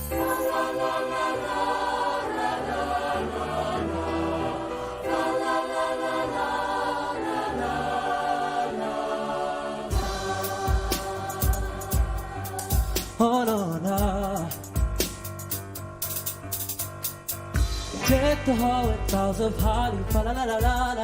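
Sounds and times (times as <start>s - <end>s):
choir singing held chords: 0.1s - 13.2s
steady bass accompaniment: 9.9s - 21.0s.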